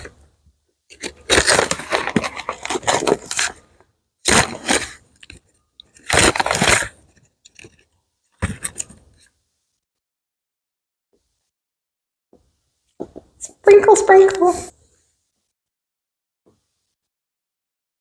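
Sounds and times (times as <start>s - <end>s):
plastic packet crinkling and tearing: 0.9s - 7.8s.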